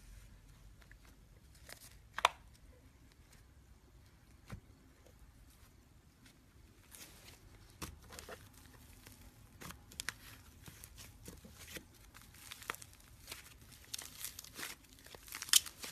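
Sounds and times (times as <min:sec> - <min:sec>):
slime crackling and popping: 0:08.2 - 0:15.9.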